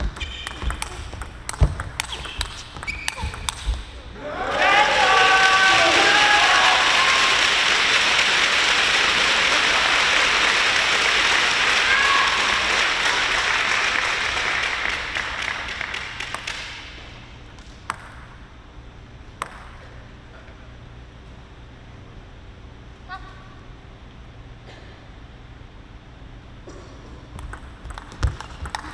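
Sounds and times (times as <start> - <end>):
people shouting: 4.1 - 7.4, 11.8 - 12.7
crowd applauding and cheering: 4.2 - 17.0.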